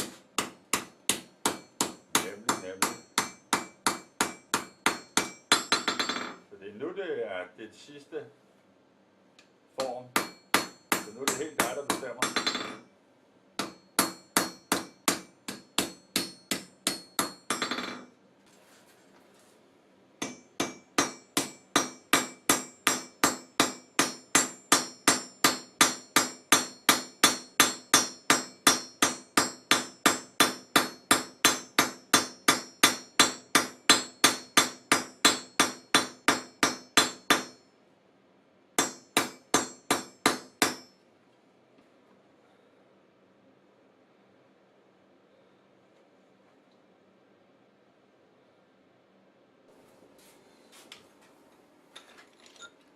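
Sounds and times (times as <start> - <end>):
hammer striking hot steel on anvil: 0.0 - 6.4, 9.8 - 12.9, 13.6 - 18.1, 20.2 - 37.6, 38.8 - 41.0.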